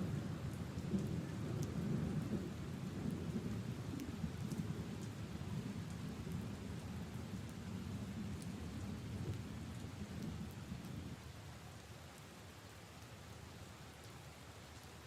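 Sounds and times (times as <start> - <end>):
rain on leaves and puddles: 0.0 - 15.0
single raindrop ticks: 3.9 - 5.2.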